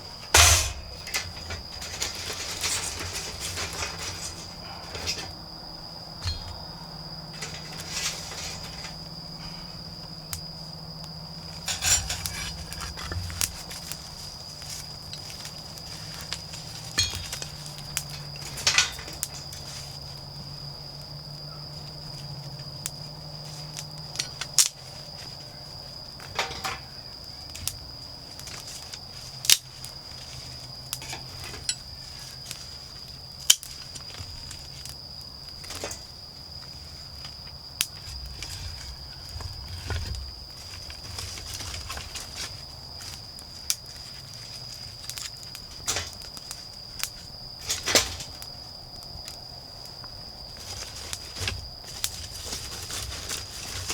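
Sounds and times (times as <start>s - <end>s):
rustling: 0.0s - 10.7s, 50.4s - 53.9s
low steady hum: 0.0s - 24.3s
insects trilling: 0.0s - 53.9s.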